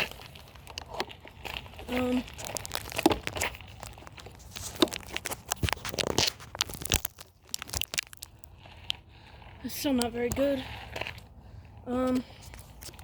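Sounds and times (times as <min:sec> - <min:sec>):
phone handling clicks and scrapes: 0:00.0 - 0:08.0, 0:12.0 - 0:13.0.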